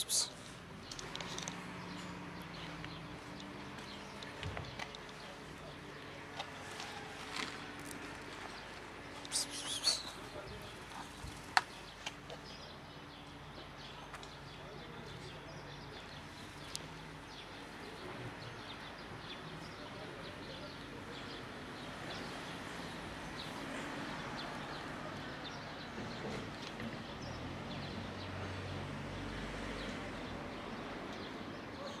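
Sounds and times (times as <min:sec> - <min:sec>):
bird chirps: 0:09.2 - 0:10.5.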